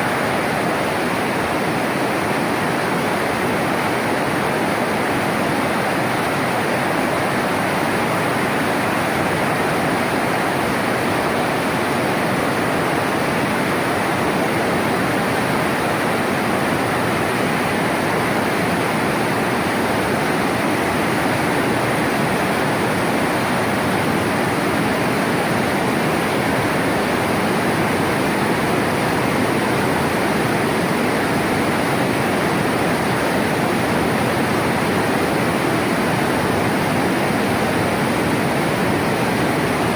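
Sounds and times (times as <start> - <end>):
water rushing in a stream: 0.0 - 39.9.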